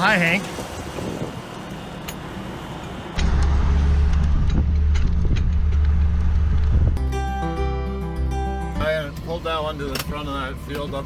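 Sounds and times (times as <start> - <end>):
tractor engine droning: 0.0 - 7.0.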